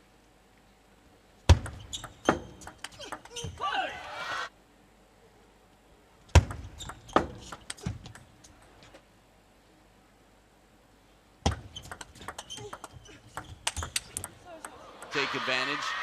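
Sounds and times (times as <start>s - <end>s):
table tennis ball clicks: 11.5s - 15.1s.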